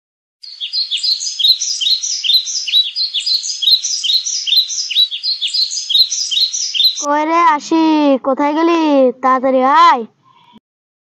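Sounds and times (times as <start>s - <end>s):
small birds chirping: 0.4s - 7.1s.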